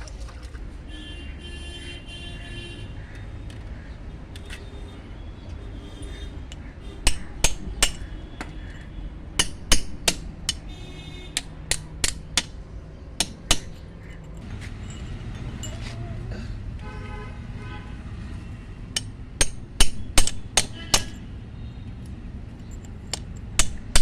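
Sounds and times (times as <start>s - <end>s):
hammer striking chisel on stone: 7.0s - 8.5s, 9.4s - 10.7s, 11.3s - 12.6s, 13.2s - 14.0s, 18.9s - 21.2s, 22.8s - 24.0s.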